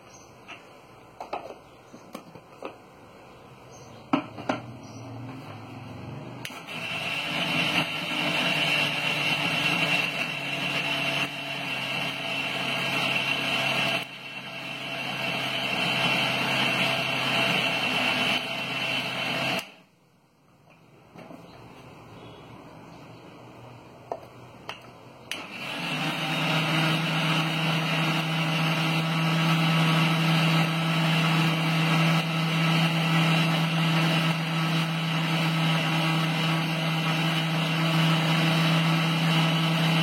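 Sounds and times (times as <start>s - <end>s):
electric grinder grinding spices: 4.5s - 19.8s, 25.3s - 40.0s.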